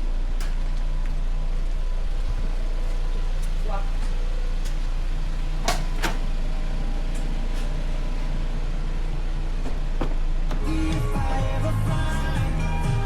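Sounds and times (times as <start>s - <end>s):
car engine rumble: 0.0s - 13.0s
road noise: 0.0s - 13.0s.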